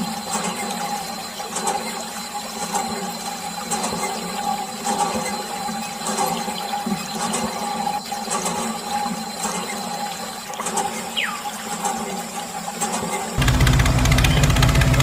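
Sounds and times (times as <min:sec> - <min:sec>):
small water pump motor: 0:00.0 - 0:15.0
water flowing and splashing: 0:00.0 - 0:15.0
low rhythmic engine-like sound: 0:13.4 - 0:15.0.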